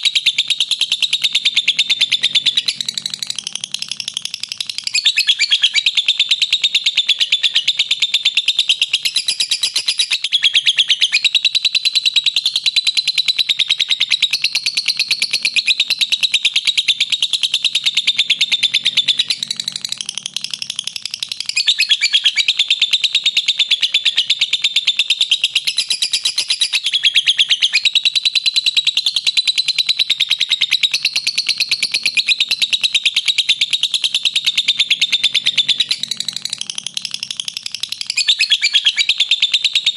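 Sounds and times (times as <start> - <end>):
lovebird shrill chattering: 0.2 - 11.3, 16.9 - 22.8, 30.4 - 39.9.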